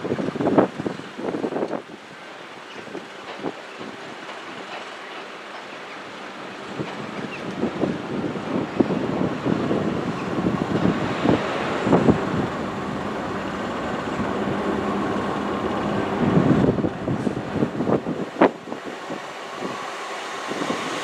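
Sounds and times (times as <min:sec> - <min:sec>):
train rumbling past: 0:00.0 - 0:21.0
faint engine drone: 0:10.1 - 0:18.0.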